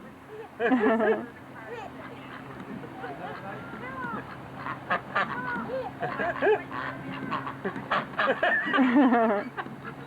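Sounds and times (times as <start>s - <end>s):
ducks quacking: 3.2s - 8.4s.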